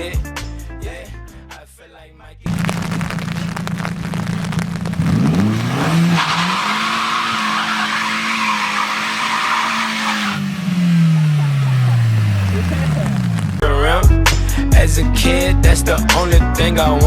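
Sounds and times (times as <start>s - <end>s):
car engine revving: 2.5s - 13.8s
tyres squealing: 5.4s - 13.6s.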